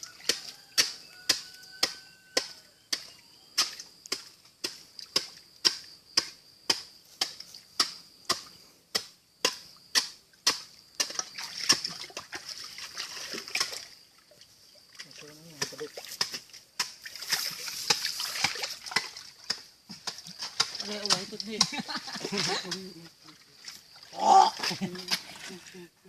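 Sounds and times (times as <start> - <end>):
faint high hiss: 13.3 - 19.4.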